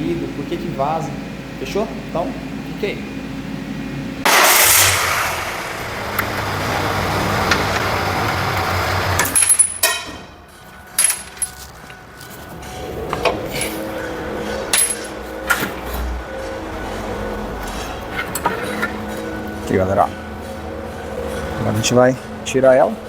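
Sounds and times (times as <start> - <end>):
steady machine noise: 0.0 - 23.0
metal tools clinking: 9.2 - 14.1, 14.7 - 16.0.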